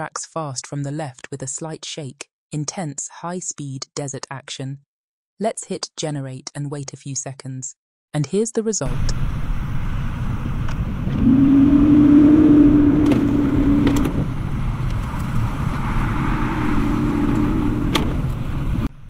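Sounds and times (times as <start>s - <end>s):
off-road vehicle engines rumbling: 8.9s - 19.0s.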